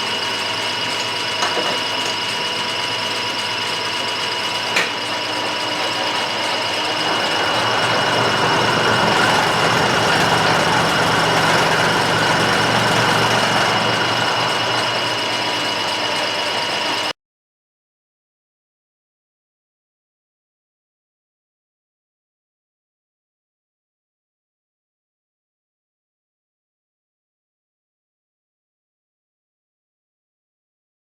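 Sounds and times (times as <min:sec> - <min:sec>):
metalworking machine whining: 0:00.0 - 0:17.1.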